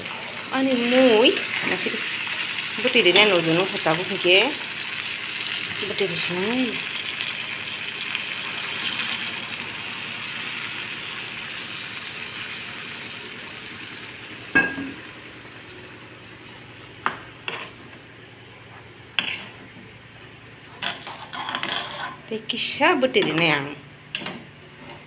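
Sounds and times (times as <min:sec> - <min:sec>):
food sizzling in oil: 0:00.0 - 0:17.9
metal spatula stirring: 0:17.4 - 0:17.8, 0:19.2 - 0:19.7, 0:20.7 - 0:22.3.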